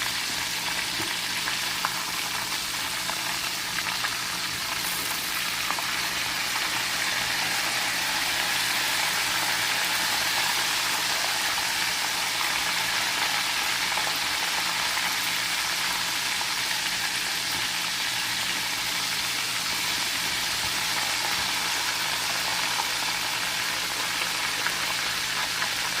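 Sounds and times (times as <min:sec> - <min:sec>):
chicken frying in hot oil: 0:00.0 - 0:26.0.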